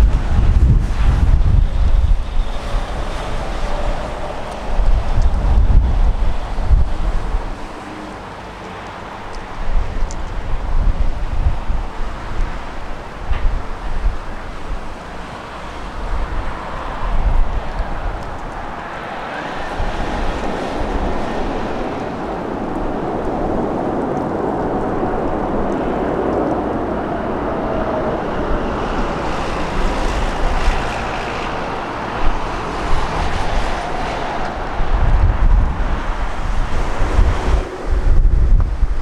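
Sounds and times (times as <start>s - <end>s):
jet engines rumbling: 0.0s - 39.0s
wind buffeting microphone: 0.0s - 39.0s.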